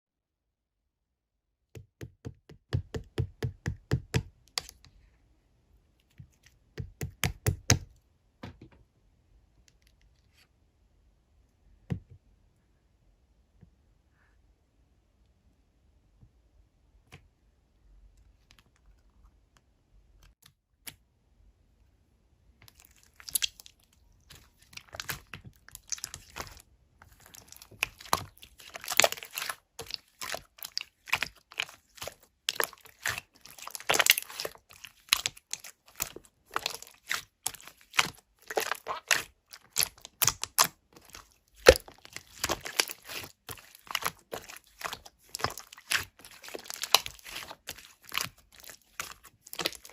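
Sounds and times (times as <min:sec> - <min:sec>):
crinkling and crunching: 0:22.6 - 0:49.9.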